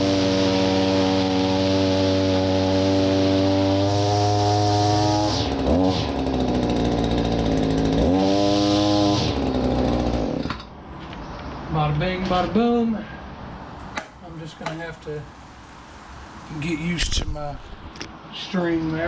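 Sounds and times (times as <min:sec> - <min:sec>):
string trimmer engine running: 0:00.0 - 0:10.7.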